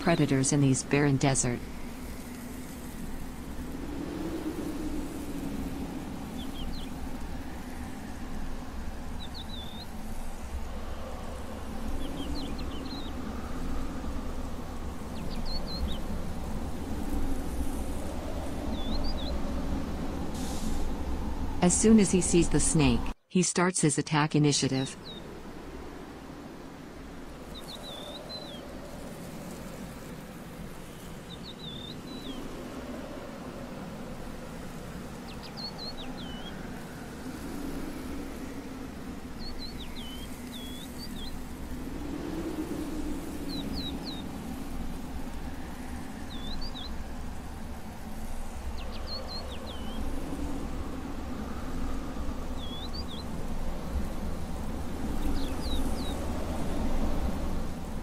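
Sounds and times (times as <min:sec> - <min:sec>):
small bird chirping: 0:09.2 - 0:10.0, 0:39.4 - 0:41.4.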